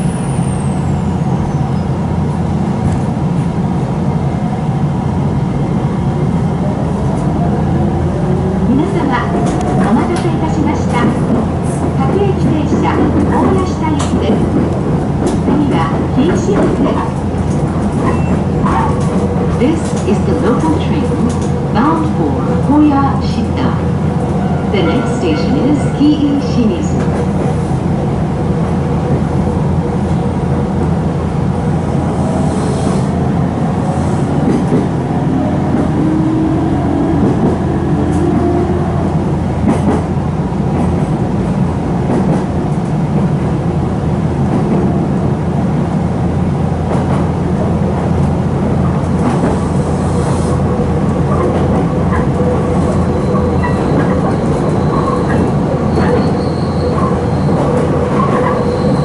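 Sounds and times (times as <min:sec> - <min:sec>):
train wheels and motors rumbling: 0:00.0 - 0:59.0
high wheel squeal: 0:53.1 - 0:57.6, 0:58.4 - 0:59.0.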